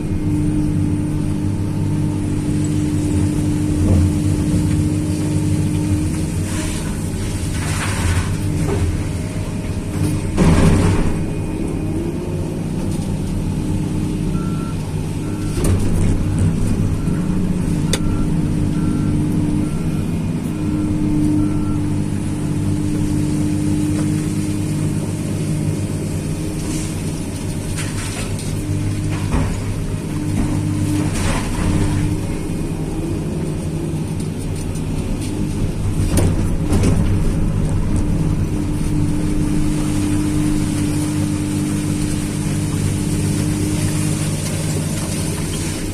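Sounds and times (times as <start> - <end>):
excavator diesel engine running: 0.0 - 45.9
reversing alarm beeping: 14.2 - 22.8.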